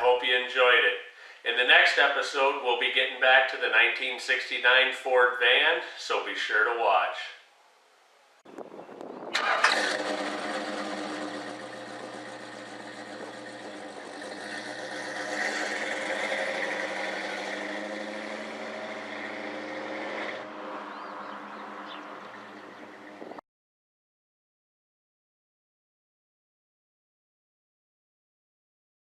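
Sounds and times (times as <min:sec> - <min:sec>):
engine starting and running: 0:09.2 - 0:23.4.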